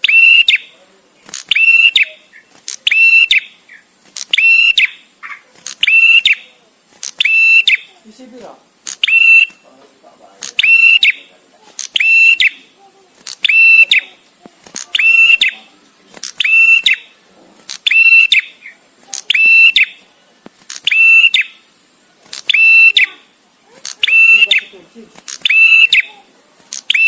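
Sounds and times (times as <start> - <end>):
bird whistled call: 0.0 - 0.7, 1.5 - 6.5, 7.2 - 7.9, 9.0 - 9.6, 10.6 - 11.3, 12.0 - 12.6, 13.4 - 14.1, 15.0 - 15.7, 16.4 - 17.1, 17.8 - 20.0, 20.8 - 21.6, 22.4 - 23.2, 24.0 - 24.8, 25.4 - 26.2.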